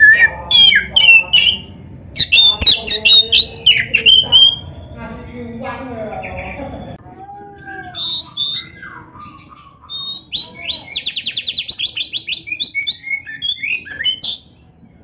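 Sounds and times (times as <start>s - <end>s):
bird whistling song: 0.0s - 4.9s, 6.3s - 14.8s.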